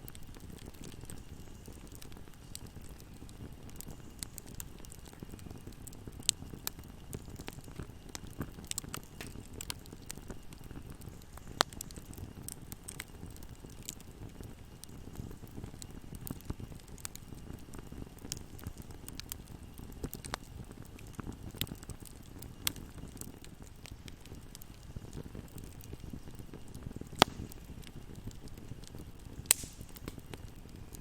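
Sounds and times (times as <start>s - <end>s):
fire crackling and snapping: 0.0s - 31.0s
low rumble of flames: 0.0s - 31.0s
sharp pop of fire: 27.2s - 27.6s, 29.4s - 30.3s.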